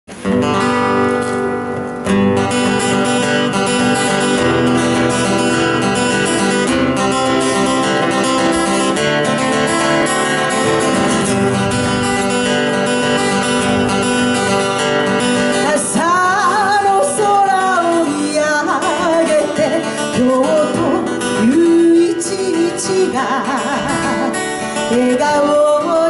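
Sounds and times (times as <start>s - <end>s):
acoustic guitar strumming: 0.1s - 26.0s.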